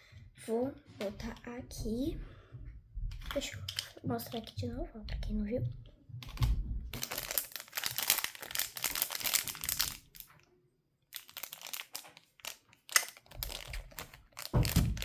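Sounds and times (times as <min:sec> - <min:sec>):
plastic packaging crinkling: 0:06.4 - 0:10.4, 0:11.1 - 0:15.0.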